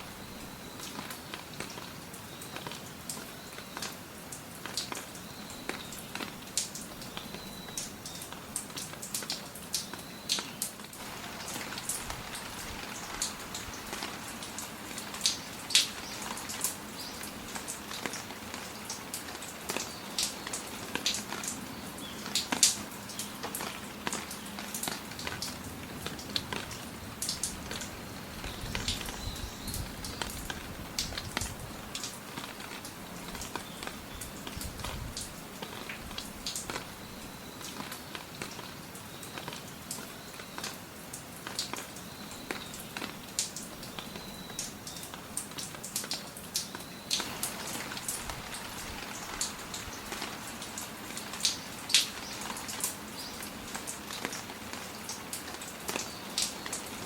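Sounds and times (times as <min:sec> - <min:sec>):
rain falling: 0:00.0 - 0:57.0
raindrops striking close by: 0:00.0 - 0:57.0.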